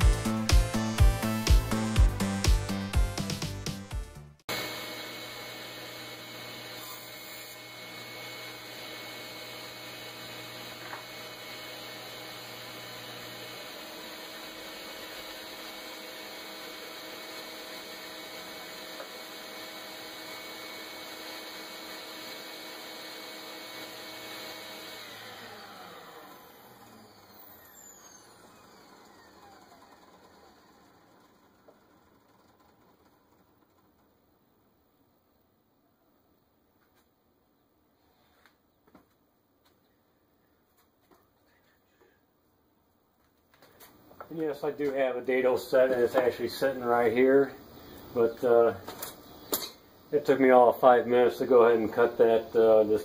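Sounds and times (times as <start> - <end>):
table saw running: 0.0 - 3.8, 4.4 - 34.1, 44.2 - 53.0.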